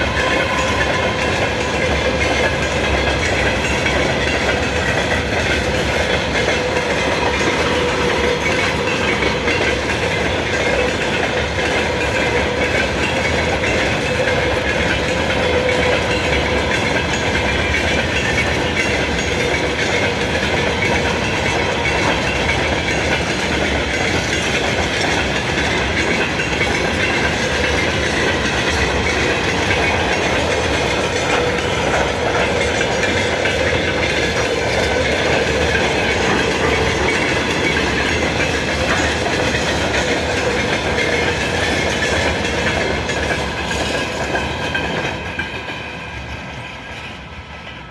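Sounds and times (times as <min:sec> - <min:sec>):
train wheels rumbling on rails: 0:00.0 - 0:47.9.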